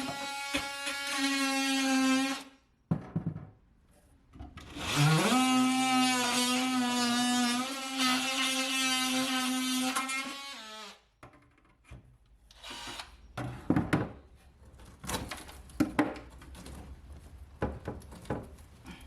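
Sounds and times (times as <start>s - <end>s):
power drill motor whining: 12.5s - 13.2s.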